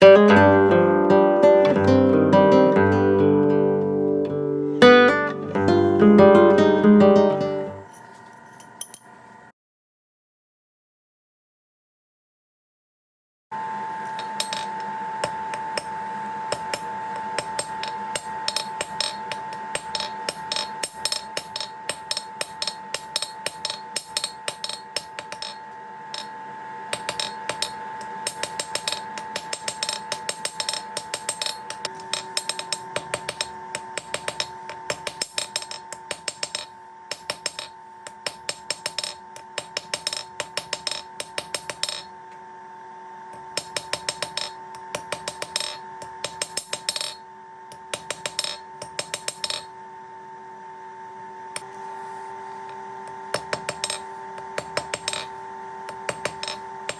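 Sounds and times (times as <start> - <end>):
steady ringing tone: 7.6 - 9.5, 13.6 - 42.3, 43.4 - 49.8, 53.3 - 56.9
hammer striking metal on anvil: 14.2 - 42.2, 43.4 - 49.8, 53.3 - 56.9.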